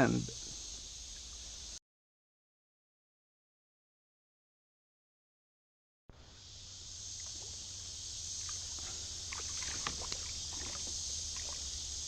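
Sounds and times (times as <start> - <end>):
high insect drone: 0.0 - 1.8, 6.1 - 12.0
water drips: 7.2 - 12.0.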